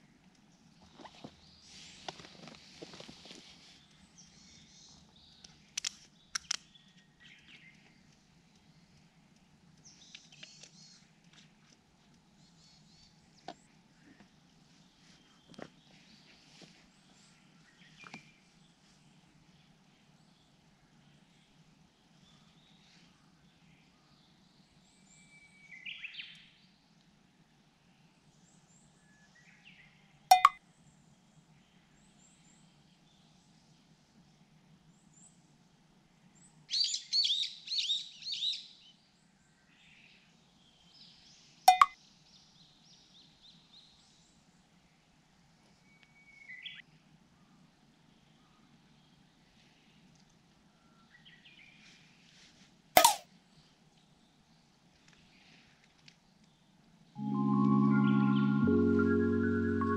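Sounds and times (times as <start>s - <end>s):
sharp double click: 30.3s - 30.6s, 41.7s - 42.0s, 53.0s - 53.2s
low steady hum: 57.2s - 59.9s.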